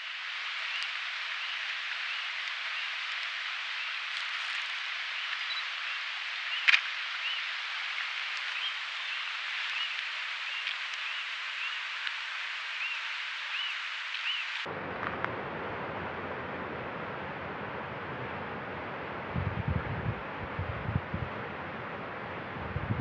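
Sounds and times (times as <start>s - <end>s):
steady outdoor hiss: 0.0s - 23.0s
bird chirping: 12.8s - 14.6s
low rumbling noise: 14.7s - 23.0s.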